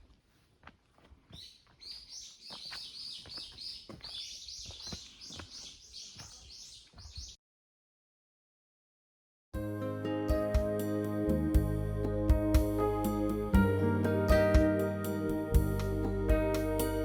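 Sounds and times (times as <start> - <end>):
soft footsteps on a trail: 0.0 - 7.3.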